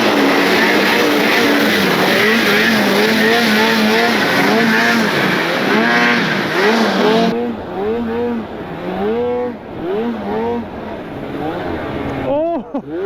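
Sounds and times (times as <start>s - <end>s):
loud rushing hiss: 0.0s - 7.3s
snowmobile engine revving: 0.0s - 13.0s.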